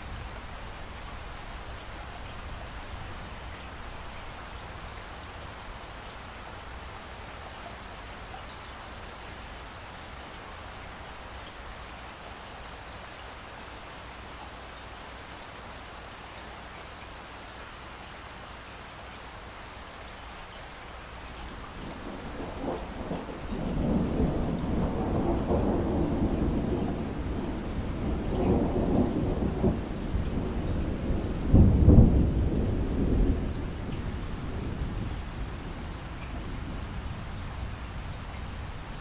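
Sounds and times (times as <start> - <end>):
steady rain: 0.0 - 39.0
thunder rolling: 21.8 - 37.4.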